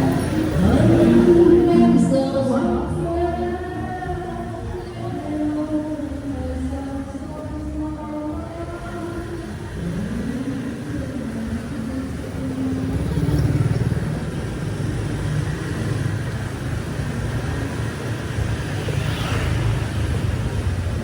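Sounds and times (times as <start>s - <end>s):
vehicles passing close by: 0.0s - 21.0s.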